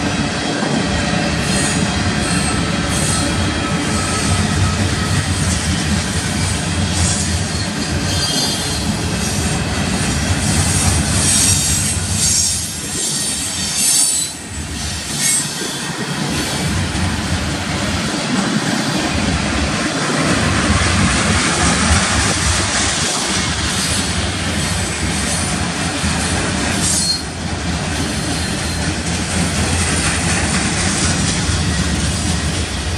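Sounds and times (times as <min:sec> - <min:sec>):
freight train wheels rumbling: 0:00.0 - 0:32.9
high-pitched wheel squeal: 0:11.3 - 0:15.8, 0:26.8 - 0:27.3.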